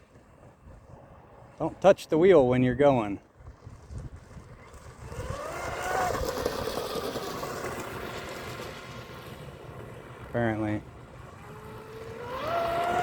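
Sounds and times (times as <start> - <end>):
electric boat motor whine: 4.4 - 13.0.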